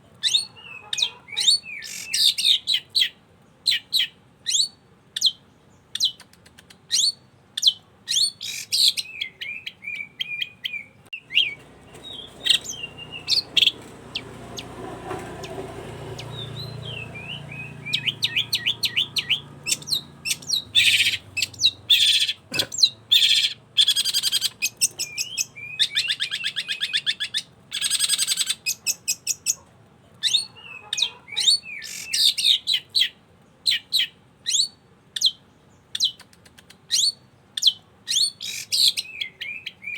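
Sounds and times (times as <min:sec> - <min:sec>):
bird chirping: 0:00.2 - 0:39.9
bird harsh rattling trills: 0:11.2 - 0:29.5.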